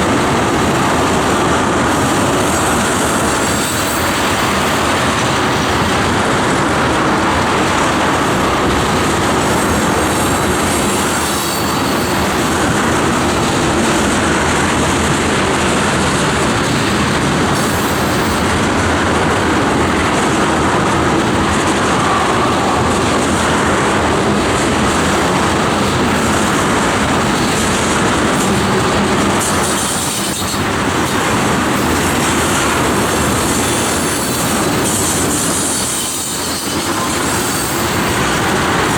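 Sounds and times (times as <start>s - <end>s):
freight train wheels clattering: 0.0s - 38.9s
wheel squeal: 9.5s - 12.8s, 31.8s - 38.6s.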